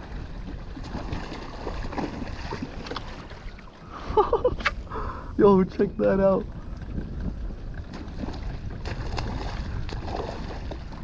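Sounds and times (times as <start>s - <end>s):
water lapping around kayak: 0.0s - 11.0s
wind rumbling on microphone: 0.0s - 11.0s.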